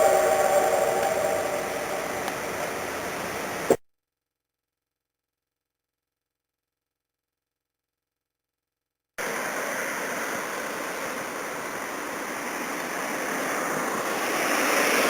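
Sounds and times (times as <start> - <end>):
steam hissing: 0.0 - 3.8.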